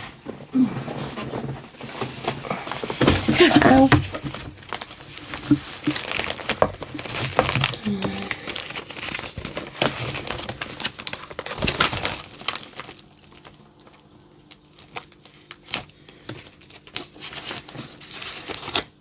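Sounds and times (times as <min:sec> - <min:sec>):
plastic packaging crinkling: 0:01.2 - 0:19.0.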